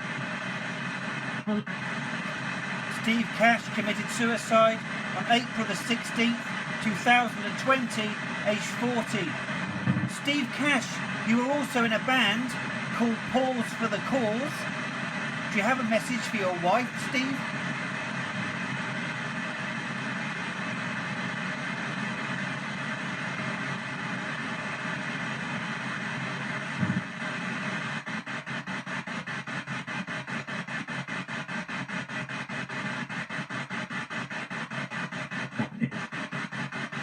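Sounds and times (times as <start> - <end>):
radio static hiss: 0.0 - 37.0
radio signal blips: 1.2 - 14.8, 26.8 - 27.1.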